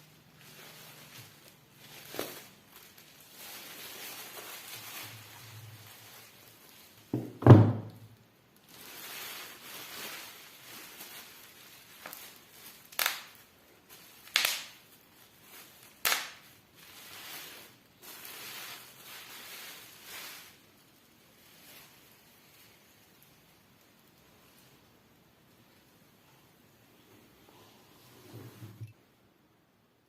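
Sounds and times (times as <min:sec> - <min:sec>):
loud handling thump: 0:07.2 - 0:07.9
soft rustling and sliding: 0:16.9 - 0:29.0.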